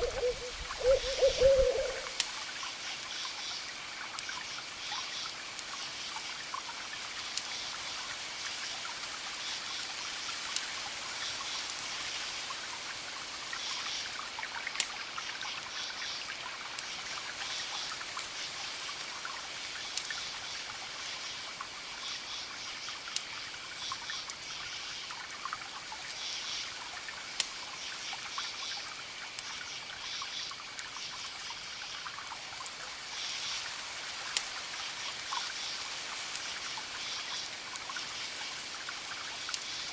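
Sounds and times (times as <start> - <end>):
crickets chirping: 0.0 - 2.2
steady hiss: 0.0 - 39.9
campfire crackling and popping: 5.6 - 7.6, 37.5 - 39.8.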